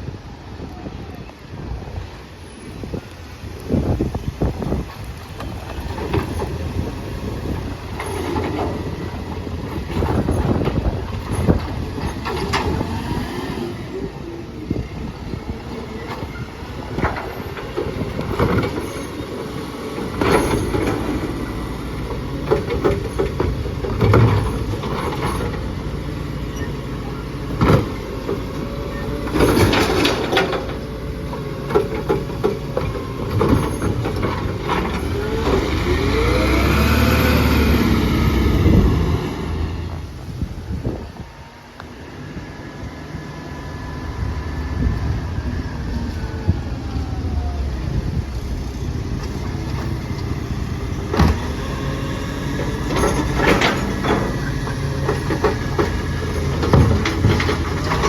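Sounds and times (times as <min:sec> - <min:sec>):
garbage truck engine running: 0:01.6 - 0:58.0
bins knocking and clattering: 0:16.1 - 0:25.8, 0:52.6 - 0:58.0.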